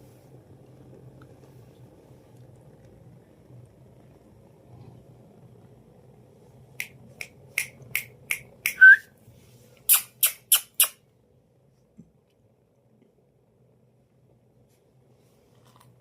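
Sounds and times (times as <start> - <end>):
parrot kissing smacks: 9.9 - 11.0.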